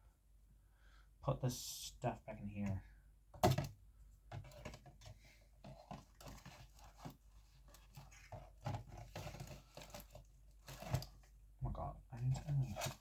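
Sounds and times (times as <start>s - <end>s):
packaging rustling: 5.6s - 11.3s.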